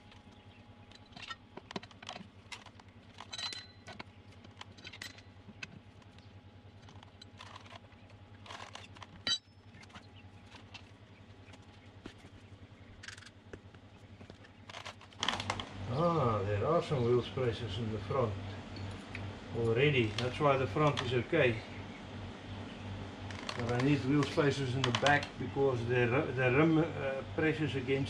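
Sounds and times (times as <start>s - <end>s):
metallic clinks of tools: 3.2s - 4.0s.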